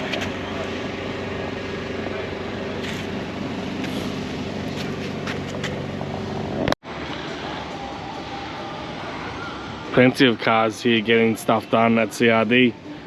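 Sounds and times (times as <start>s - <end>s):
car engine running: 0.0s - 6.8s
workshop hum: 0.0s - 13.0s.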